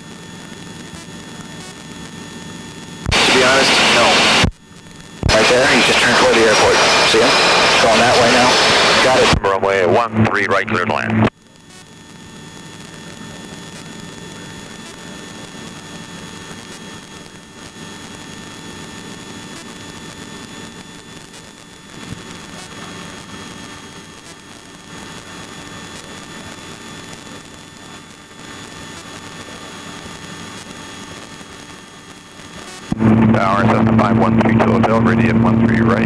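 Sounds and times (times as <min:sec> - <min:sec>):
high whine: 0:03.0 - 0:04.5, 0:05.2 - 0:11.3, 0:32.7 - 0:36.0
helicopter engine and rotor: 0:33.0 - 0:35.6.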